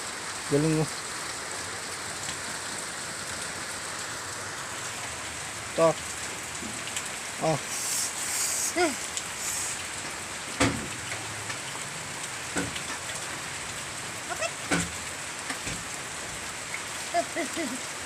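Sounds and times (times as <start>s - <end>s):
steady rain hiss: 0.0s - 18.0s
drip-like taps: 12.5s - 13.1s.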